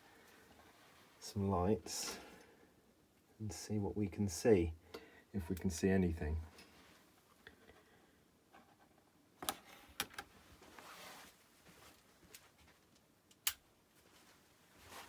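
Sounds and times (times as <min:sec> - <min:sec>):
rustle of handling: 0:10.4 - 0:13.0, 0:13.9 - 0:15.0.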